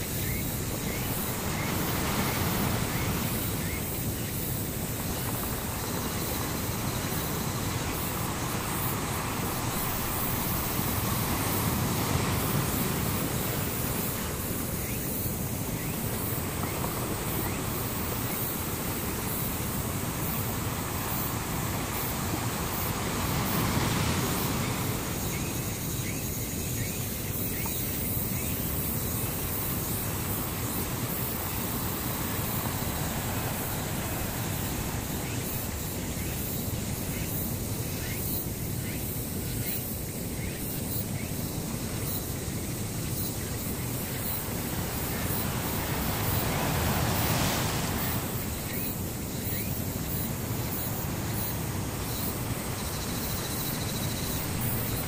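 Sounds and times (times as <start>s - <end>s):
steady rushing noise: 42.1s - 55.0s.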